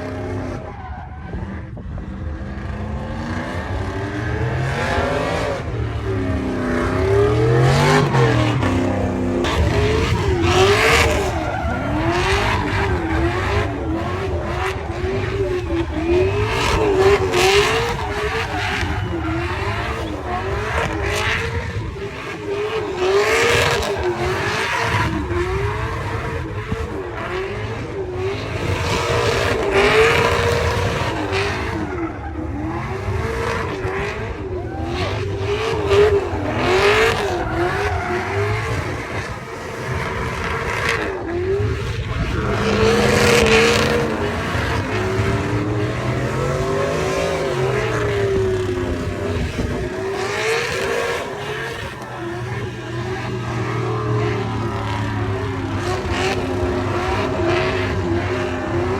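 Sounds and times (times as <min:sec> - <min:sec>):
truck engine revving: 0:00.0 - 0:58.9
tyre squeal: 0:04.1 - 0:27.0.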